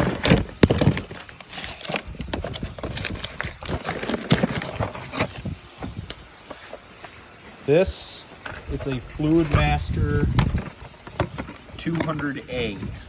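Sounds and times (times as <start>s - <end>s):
cardboard box being handled: 0.0s - 5.5s.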